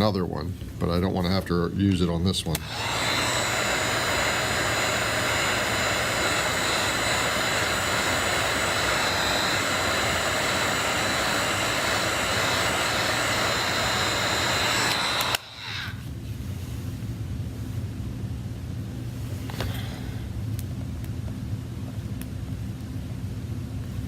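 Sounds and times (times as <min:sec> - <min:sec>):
heat gun blowing with whine: 0:02.4 - 0:16.2.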